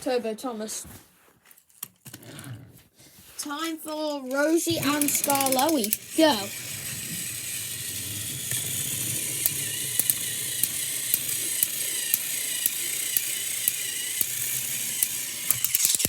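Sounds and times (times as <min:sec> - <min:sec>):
toy train motors whirring: 0:03.4 - 0:16.0
sharp regular clicks: 0:04.2 - 0:16.0.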